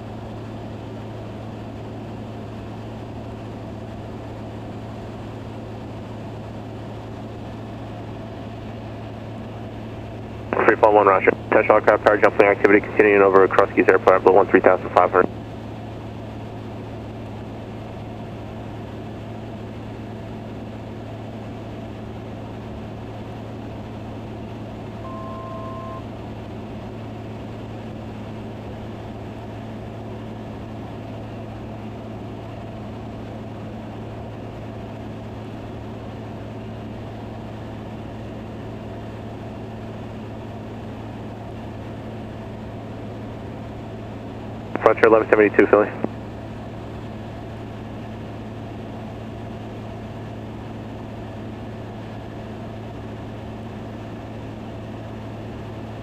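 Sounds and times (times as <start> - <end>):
aircraft engine and propeller drone: 0.0 - 56.0
two-tone beep: 25.0 - 26.1.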